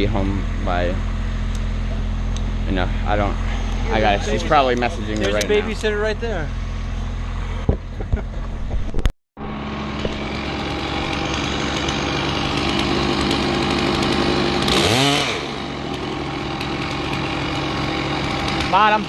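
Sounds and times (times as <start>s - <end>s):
chainsaw cutting wood: 3.3s - 5.9s, 9.4s - 19.0s.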